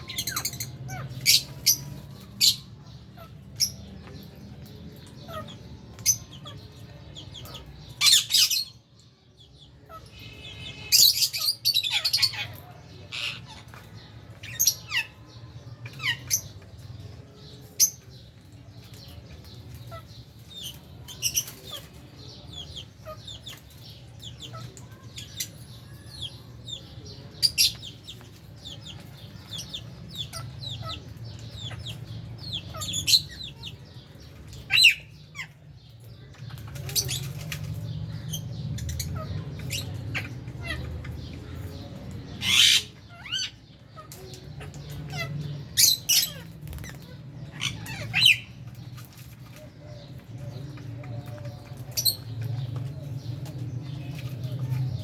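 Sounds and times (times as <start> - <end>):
birds chirping and squawking: 0.0 - 55.0.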